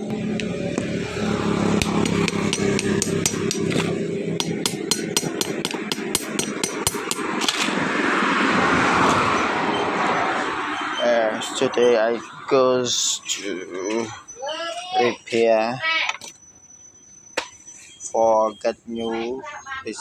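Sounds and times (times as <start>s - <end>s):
sharp taps: 1.8s - 7.7s
rushing noise: 6.8s - 13.7s.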